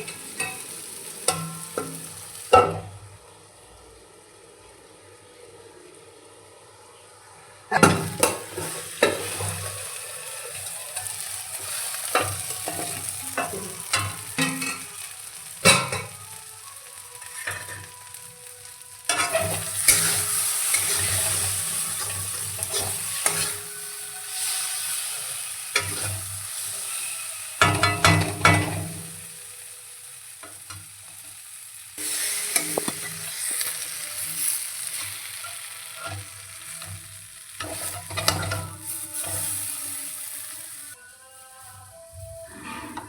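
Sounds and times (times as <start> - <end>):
food sizzling in a pan: 0.0 - 43.0
spatula scraping a pan: 7.8 - 16.1, 17.2 - 18.2, 19.1 - 29.1, 32.0 - 40.9, 42.2 - 43.0.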